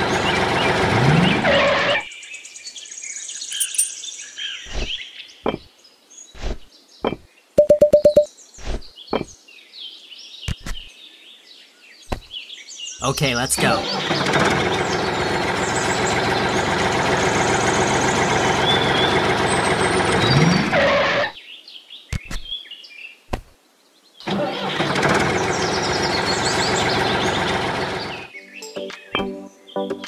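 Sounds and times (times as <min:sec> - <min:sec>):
toy tractor engine: 0:00.0 - 0:02.0, 0:13.6 - 0:21.2, 0:24.3 - 0:28.3.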